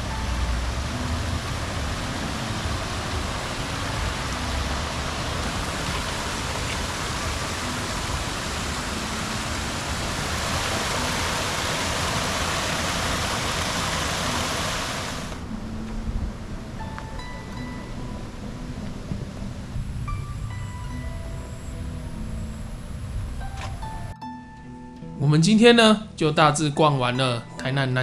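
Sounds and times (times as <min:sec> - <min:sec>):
flowing water rushing: 0:00.0 - 0:20.1.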